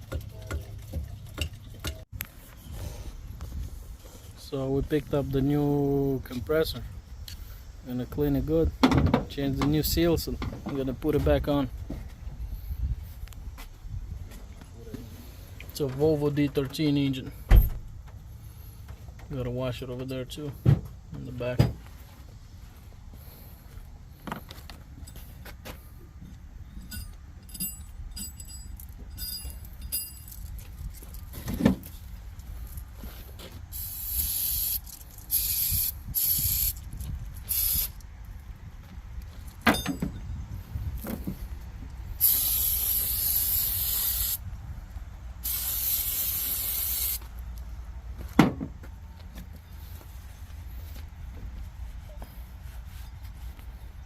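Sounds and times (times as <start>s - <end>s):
light metal clinks: 26.7s - 31.3s
spray hissing: 33.8s - 36.8s, 37.5s - 38.0s, 42.2s - 44.4s, 45.4s - 47.3s.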